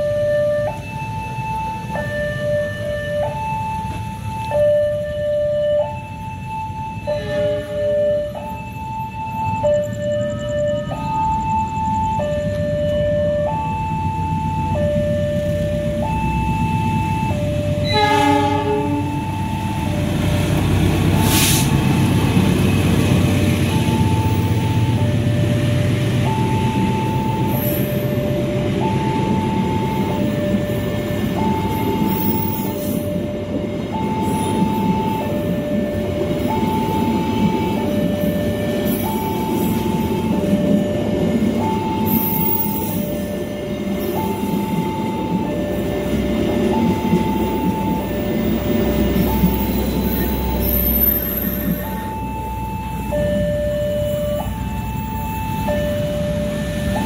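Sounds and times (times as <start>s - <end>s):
level crossing two-tone alarm: 0.0s - 57.0s
train horn blast: 7.1s - 7.9s, 17.8s - 19.2s
train wheels rumbling and clattering: 11.4s - 57.0s.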